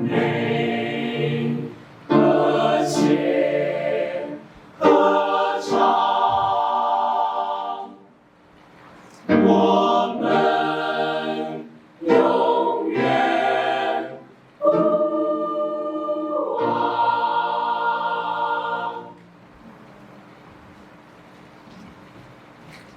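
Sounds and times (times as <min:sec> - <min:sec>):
choir singing: 0:00.0 - 0:08.1, 0:09.2 - 0:19.3.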